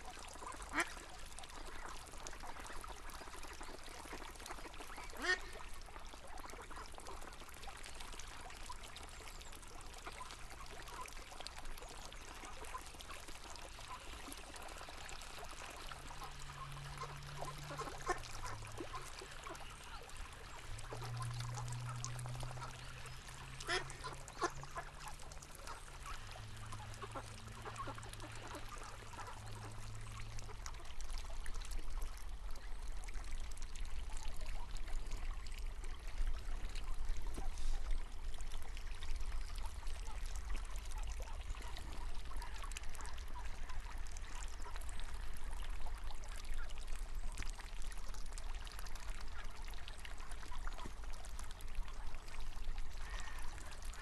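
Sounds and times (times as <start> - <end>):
river water flowing: 0.0 - 54.0
ducks quacking: 5.2 - 5.6, 16.0 - 29.8
faint low hum: 9.0 - 54.0.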